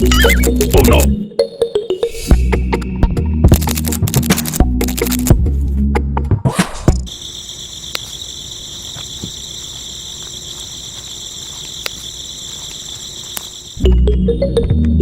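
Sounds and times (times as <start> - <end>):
crickets chirping: 7.0 - 14.9.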